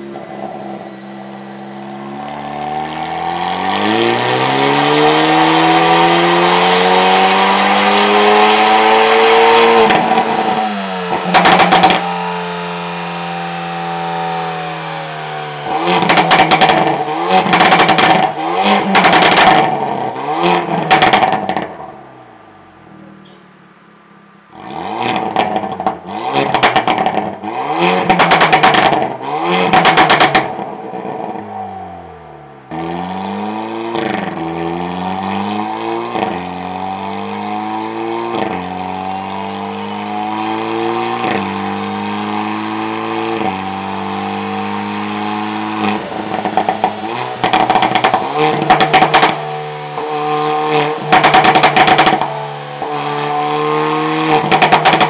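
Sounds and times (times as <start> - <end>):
car engine revving: 0.0 - 55.0
exhaust pops and crackles: 9.8 - 12.1, 15.8 - 20.0, 20.6 - 21.8, 25.1 - 31.4, 45.8 - 49.4, 50.7 - 53.0, 54.3 - 55.0.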